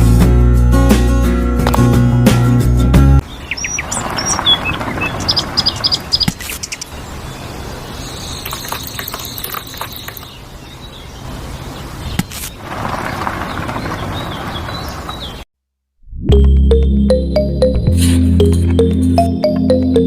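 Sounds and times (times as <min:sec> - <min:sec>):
low outdoor background noise: 0:03.2 - 0:15.4
small birds chirping: 0:03.2 - 0:15.5.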